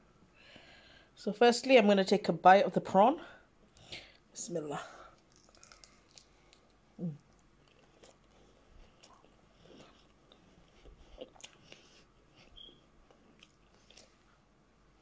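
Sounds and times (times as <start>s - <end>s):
faint chewing: 5.1s - 14.4s.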